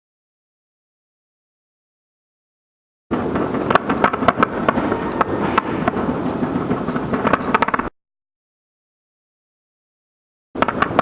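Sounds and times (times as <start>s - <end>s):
fireworks bangs and crackles: 3.1s - 7.9s, 10.6s - 11.0s
steady rumble: 3.1s - 7.9s.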